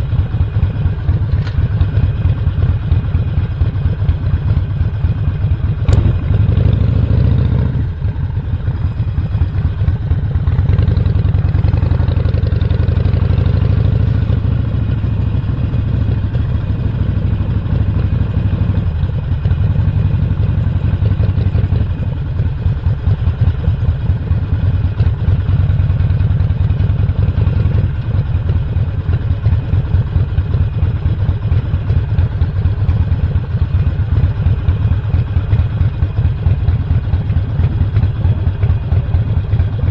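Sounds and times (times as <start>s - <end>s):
motorcycle engine running: 0.0s - 39.9s
sharp click: 5.9s - 6.4s.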